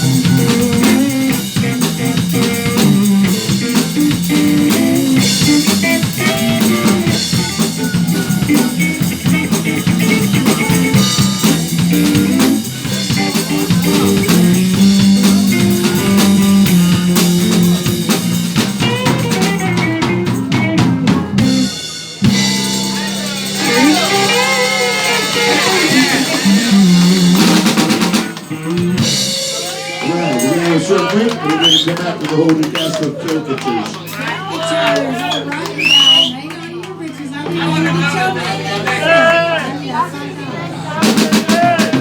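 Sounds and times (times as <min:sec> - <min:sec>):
drum kit: 0:00.0 - 0:30.7, 0:41.0 - 0:42.0
live band playing: 0:00.0 - 0:36.4, 0:40.9 - 0:42.0.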